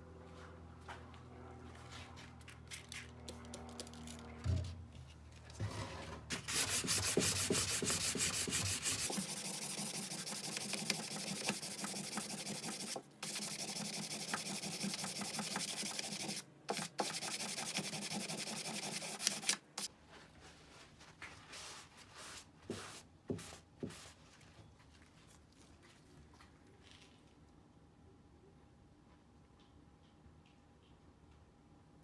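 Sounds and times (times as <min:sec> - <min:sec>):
scratchy sanding strokes: 0:06.3 - 0:19.6.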